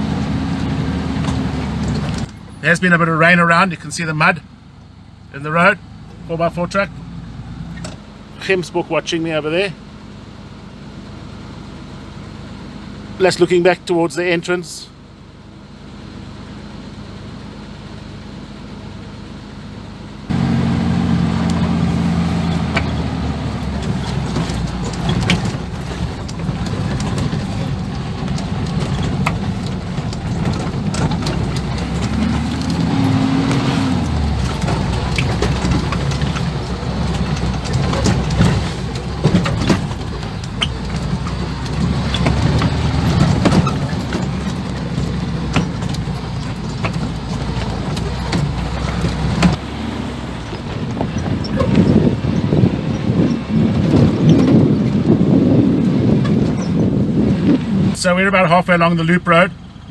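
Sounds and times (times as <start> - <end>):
knocks and rattles over bumps: 0.0 - 3.9, 20.3 - 59.9
off-road vehicle engine running: 0.0 - 59.9.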